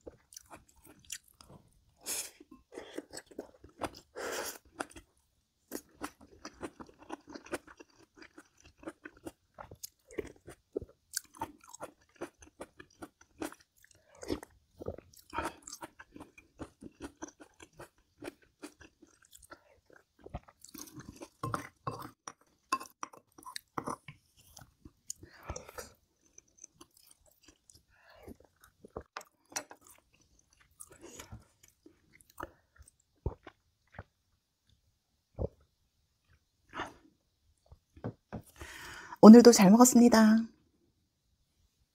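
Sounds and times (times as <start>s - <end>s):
person chewing food: 0.0s - 38.8s
food crunching: 5.7s - 34.2s.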